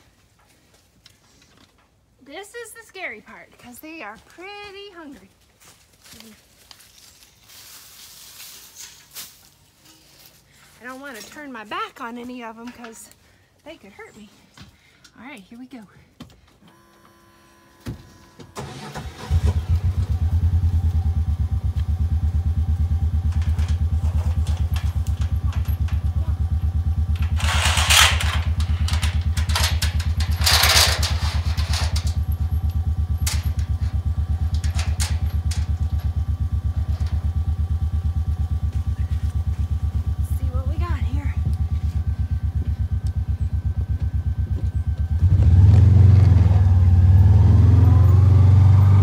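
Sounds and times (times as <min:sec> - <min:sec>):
utility vehicle engine idling: 0:18.0 - 0:49.0
engine cranking: 0:18.5 - 0:49.0
loud noisy bursts: 0:27.1 - 0:32.1.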